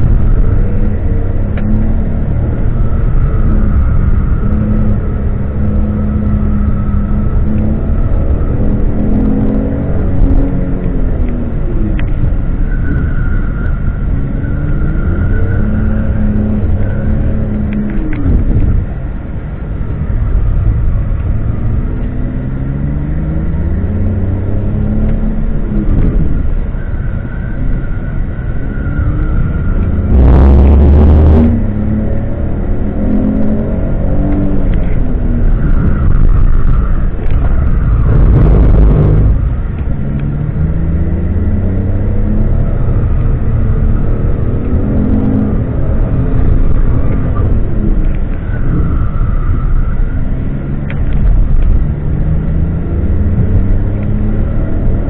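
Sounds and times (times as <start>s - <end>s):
car engine revving from inside cabin: 29.5s - 36.0s, 37.2s - 48.9s, 50.4s - 55.0s.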